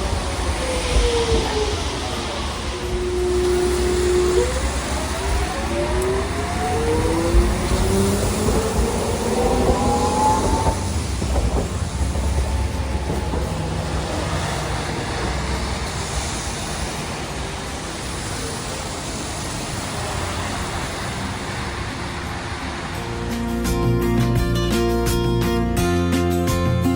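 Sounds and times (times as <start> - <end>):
streetcar running on rails: 0.0 - 26.9
electric motor whine: 1.0 - 16.0.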